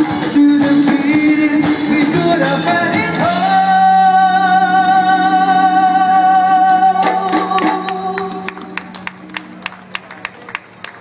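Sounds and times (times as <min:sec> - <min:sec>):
live band playing pop: 0:00.0 - 0:10.2.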